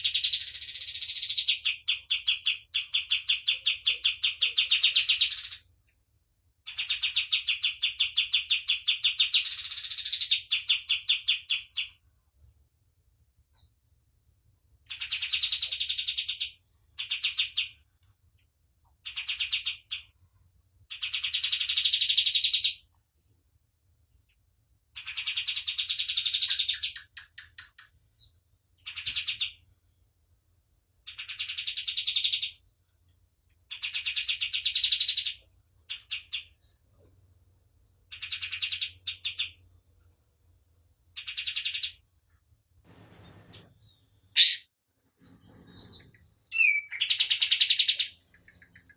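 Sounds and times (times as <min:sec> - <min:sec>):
bird trilled chatter: 0:00.0 - 0:05.7, 0:06.7 - 0:12.0, 0:25.0 - 0:29.6, 0:31.0 - 0:32.6, 0:38.1 - 0:39.6, 0:41.2 - 0:42.0, 0:42.9 - 0:48.9.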